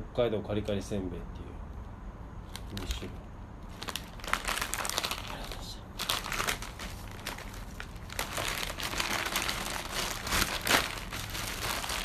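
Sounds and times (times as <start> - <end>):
snack packaging crinkling: 2.5 - 3.1, 3.7 - 12.0.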